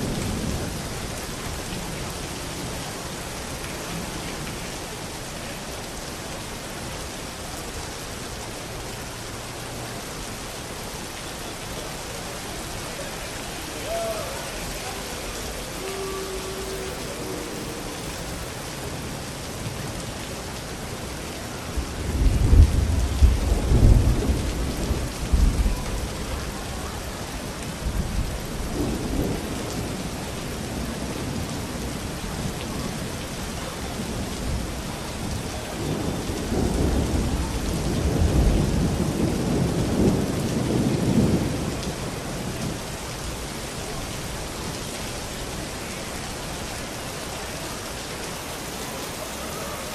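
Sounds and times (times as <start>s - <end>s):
steady rain: 0.0s - 49.9s
thunder rumbling: 12.4s - 20.1s, 21.7s - 26.6s, 46.4s - 49.9s.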